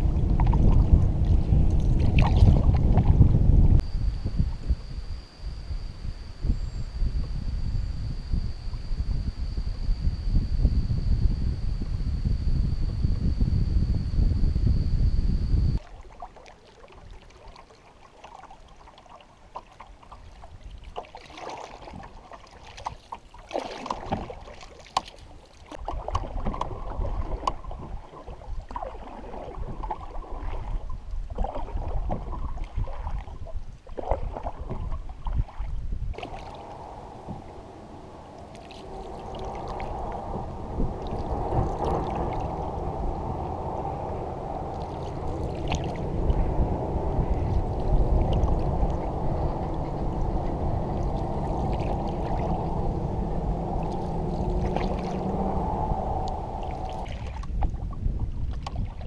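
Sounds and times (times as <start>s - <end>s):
water splashing around canoe paddle: 0.0s - 3.4s, 15.8s - 59.0s
low rumble: 0.0s - 15.8s, 36.0s - 58.9s
water rushing along hull: 0.0s - 59.0s.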